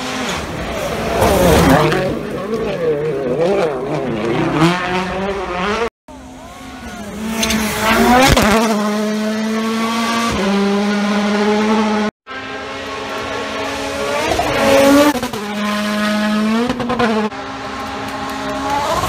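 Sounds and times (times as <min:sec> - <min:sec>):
rally car engines revving: 0:00.0 - 0:19.0.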